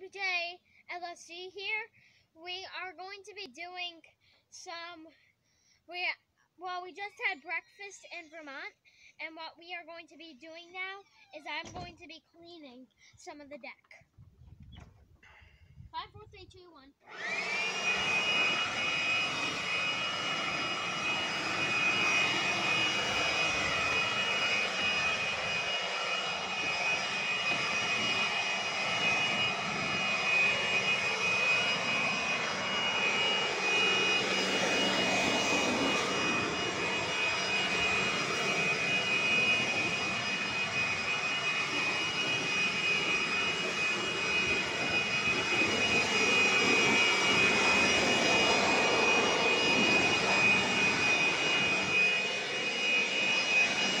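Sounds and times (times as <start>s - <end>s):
vacuum cleaner running: 17.0s - 54.0s.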